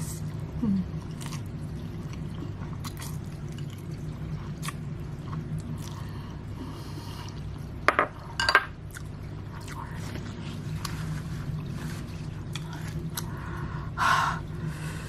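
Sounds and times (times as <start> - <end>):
wet chewing: 8.9 - 13.4.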